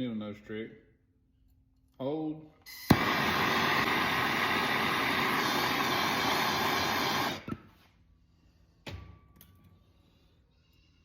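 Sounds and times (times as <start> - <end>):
gas torch hissing: 2.7 - 7.7.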